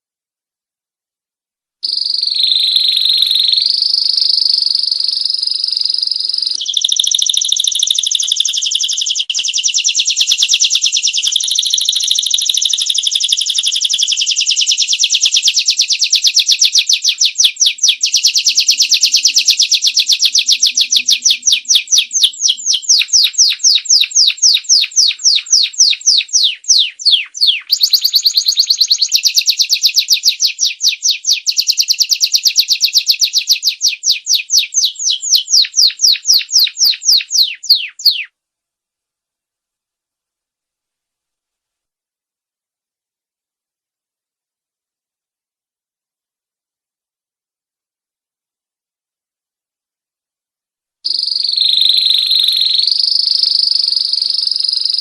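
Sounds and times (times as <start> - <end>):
canary singing trills: 1.8 - 38.3, 51.1 - 55.0.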